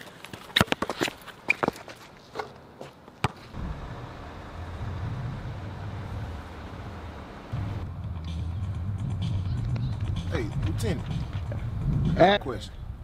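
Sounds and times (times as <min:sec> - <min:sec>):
car engine idling: 0:03.6 - 0:09.5.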